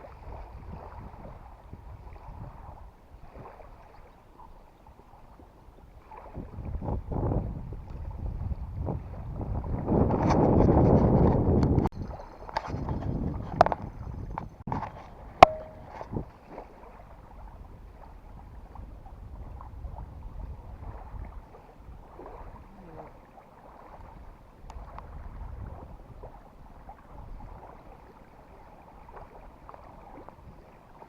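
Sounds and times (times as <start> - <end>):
wind buffeting microphone: 0.0 - 4.1, 4.8 - 23.0, 23.8 - 31.0
water lapping and splashing: 0.0 - 31.0
sharp knock: 15.4 - 16.0.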